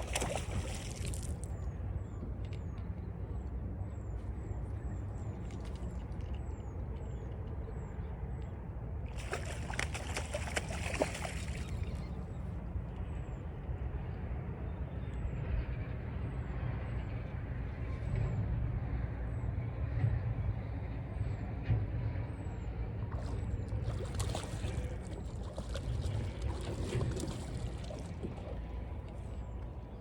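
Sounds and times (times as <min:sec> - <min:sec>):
water splashing and sloshing: 0:00.0 - 0:02.6, 0:04.4 - 0:07.1, 0:09.1 - 0:12.4, 0:22.8 - 0:30.0
low rumble: 0:17.6 - 0:30.0.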